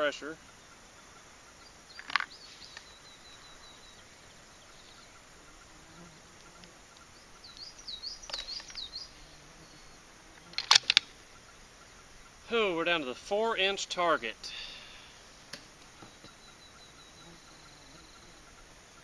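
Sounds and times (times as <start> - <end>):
small songbirds chirping: 0.0 - 19.0
sharp clicks: 8.2 - 8.9, 10.4 - 11.1.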